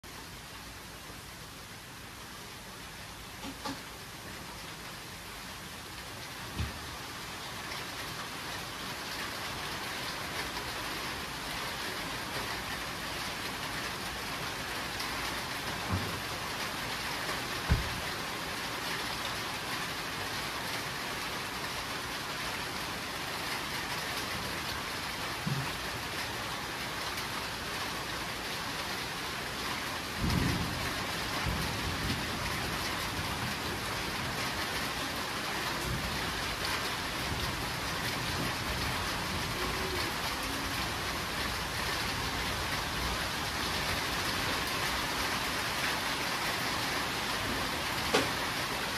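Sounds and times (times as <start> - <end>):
heavy rain: 0.0 - 48.9
thunder rumbles: 17.6 - 18.2, 30.1 - 33.9.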